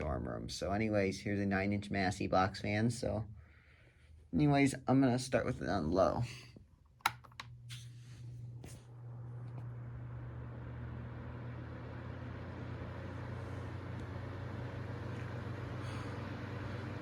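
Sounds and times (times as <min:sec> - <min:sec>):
clicks: 0:07.0 - 0:07.8
box fan running: 0:07.0 - 0:17.0.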